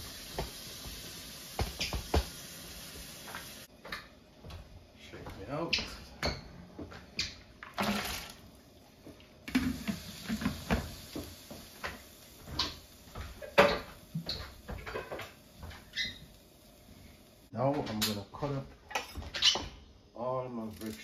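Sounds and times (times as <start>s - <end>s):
tap water running into sink: 0.0s - 3.7s, 7.6s - 16.1s
water splash: 7.6s - 8.4s
knocks and clatter in sink: 9.5s - 15.8s.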